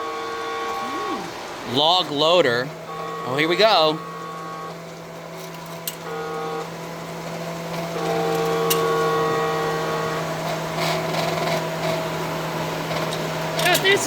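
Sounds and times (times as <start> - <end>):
small electric motor humming: 0.0 - 1.6, 3.9 - 12.8.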